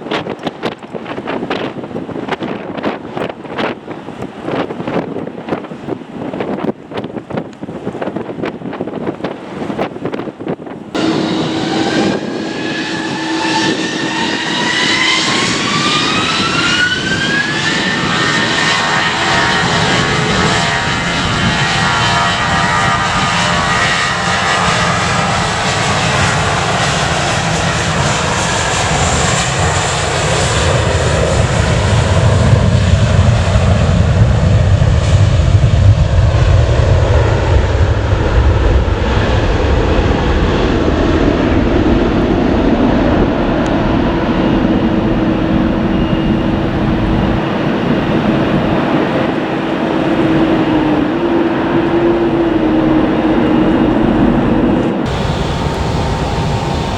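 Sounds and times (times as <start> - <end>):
deep rumble: 10.8 - 56.9
jet engines spooling up: 11.0 - 56.9.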